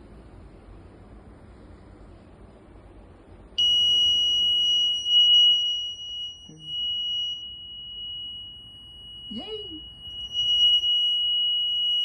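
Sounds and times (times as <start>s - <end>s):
electronic buzzer steady tone: 3.6s - 12.0s.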